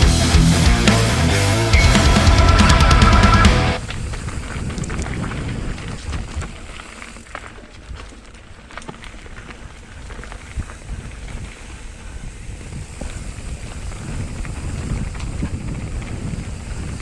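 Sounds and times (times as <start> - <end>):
wind buffeting microphone: 3.5 - 6.9, 9.1 - 17.0
bike clicks and rattles: 3.8 - 17.0.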